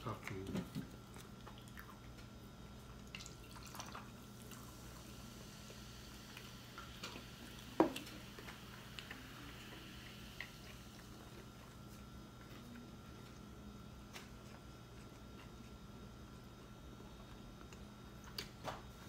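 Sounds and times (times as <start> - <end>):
faint steady hum: 0.0 - 19.0
wet chewing and mouth smacks: 0.1 - 4.7.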